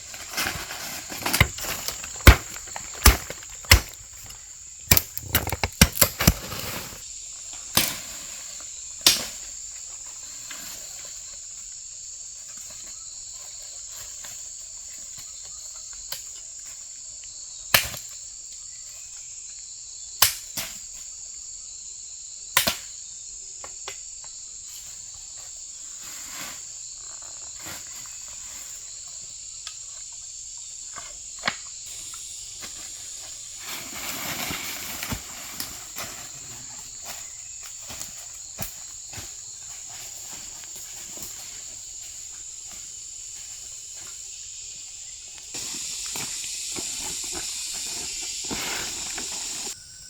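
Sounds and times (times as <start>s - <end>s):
rustling scrape: 0.0s - 7.1s, 25.9s - 26.8s, 32.6s - 37.3s, 45.6s - 49.8s
high-pitched insect chorus: 0.0s - 50.0s.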